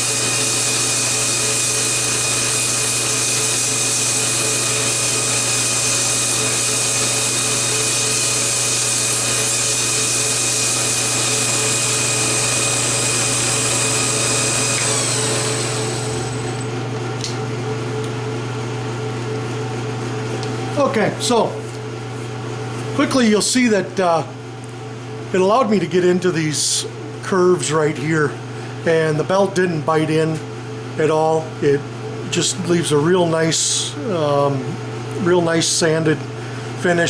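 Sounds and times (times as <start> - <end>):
belt grinder grinding wood: 0.0 - 16.8
motor winding down: 0.0 - 16.8.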